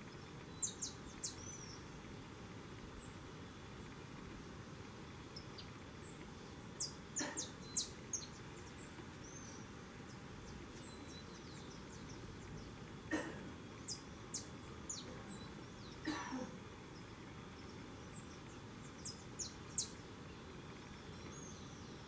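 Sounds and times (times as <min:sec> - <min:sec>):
birds chirping: 0:00.0 - 0:22.0
steady outdoor hiss: 0:00.0 - 0:22.0.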